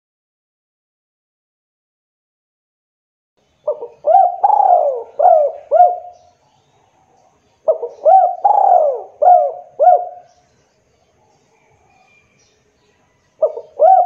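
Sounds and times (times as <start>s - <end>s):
dove cooing: 3.7s - 6.3s, 7.6s - 10.3s, 13.4s - 14.0s.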